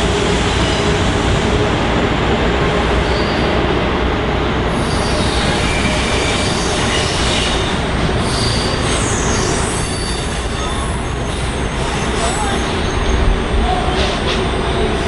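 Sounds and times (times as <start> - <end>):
train wheels rumbling on rail: 0.0 - 15.0
faint high wheel squeal: 3.0 - 3.5, 4.8 - 14.7.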